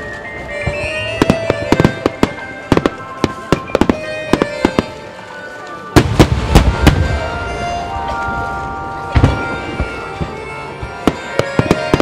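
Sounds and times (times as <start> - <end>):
fireworks bursting: 0.0 - 12.0
music with long held notes: 0.0 - 12.0
deep firework booms: 6.0 - 7.4, 9.1 - 10.3.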